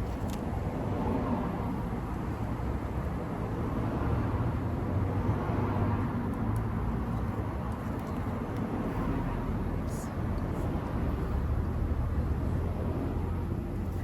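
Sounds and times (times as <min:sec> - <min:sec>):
low vehicle rumble: 0:00.0 - 0:14.0.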